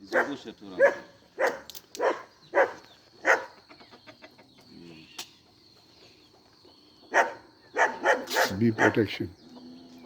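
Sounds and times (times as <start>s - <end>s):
dog barking: 0.1s - 3.6s, 7.1s - 9.1s.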